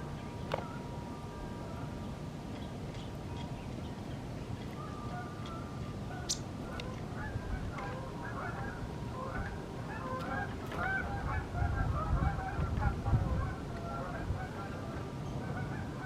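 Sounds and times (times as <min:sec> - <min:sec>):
geese honking: 0:04.8 - 0:16.0.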